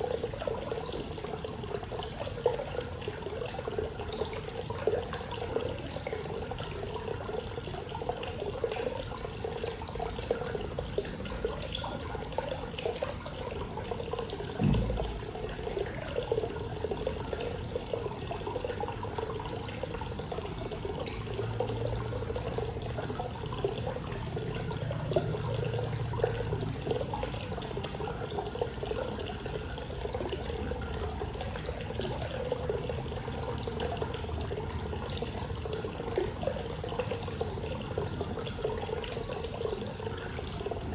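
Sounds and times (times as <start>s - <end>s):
water pouring into a bath: 0.0s - 40.9s
low thump: 14.6s - 15.5s.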